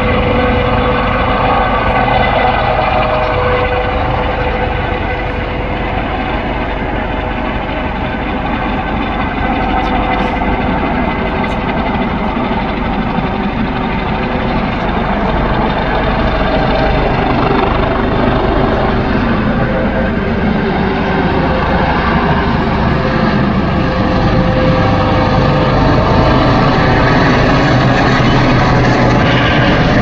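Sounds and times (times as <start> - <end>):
helicopter rotor and engine noise: 0.0 - 30.0
helicopter turbine whine: 0.0 - 30.0.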